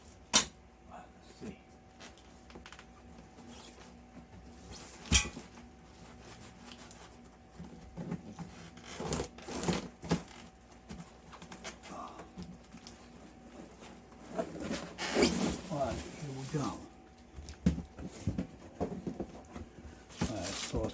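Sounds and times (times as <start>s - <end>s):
box and packing rustling: 2.0s - 20.9s.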